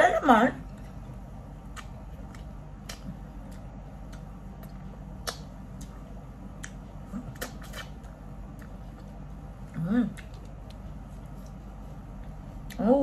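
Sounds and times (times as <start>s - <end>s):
low steady hum: 0.0s - 13.0s
chewing mouth clicks and smacks: 1.6s - 11.6s.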